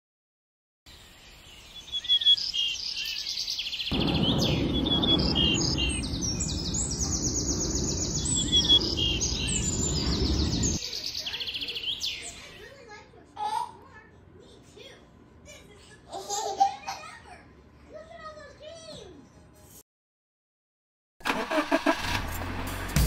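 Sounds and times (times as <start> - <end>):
birds singing: 0.9 - 12.8
low rushing noise: 3.9 - 10.8.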